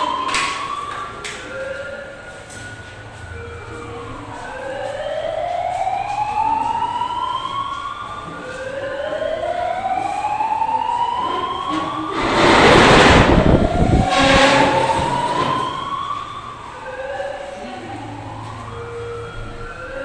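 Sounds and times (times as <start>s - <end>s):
emergency siren wailing: 0.0s - 20.0s
loud rush of noise: 11.6s - 16.6s.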